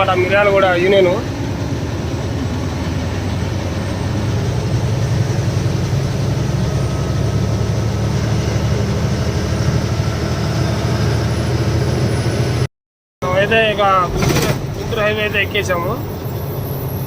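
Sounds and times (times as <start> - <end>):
road noise: 0.0 - 17.0
truck diesel engine running: 0.0 - 17.0.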